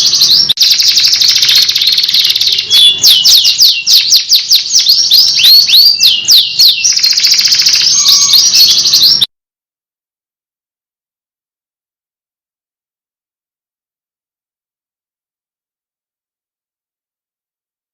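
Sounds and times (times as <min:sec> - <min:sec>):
canary singing trills and whistles: 0:00.0 - 0:09.3.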